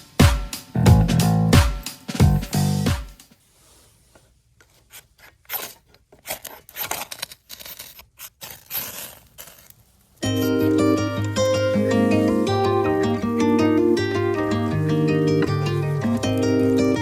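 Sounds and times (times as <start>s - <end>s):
background music: 0.0s - 3.2s, 10.2s - 17.0s
handling scrapes and clicks: 3.2s - 10.7s.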